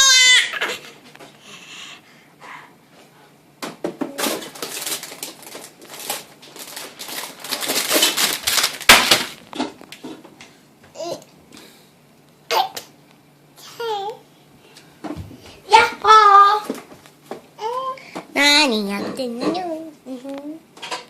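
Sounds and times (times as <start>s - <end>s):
crinkling and rustling of handling: 2.9s - 11.4s, 14.1s - 21.0s.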